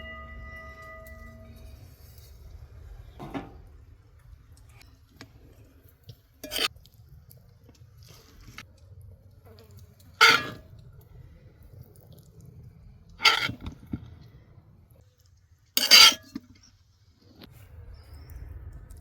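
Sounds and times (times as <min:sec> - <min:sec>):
faint clinks: 0:00.0 - 0:02.4.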